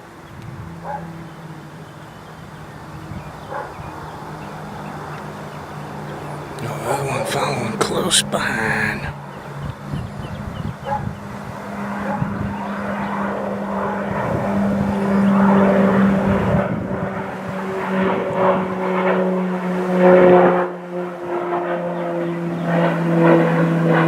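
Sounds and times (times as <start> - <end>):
aircraft engine drone: 0.0 - 9.9, 11.2 - 18.0.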